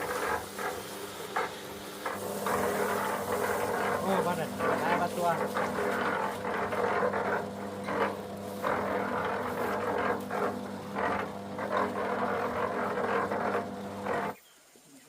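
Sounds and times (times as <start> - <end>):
engine humming: 0.0 - 14.4.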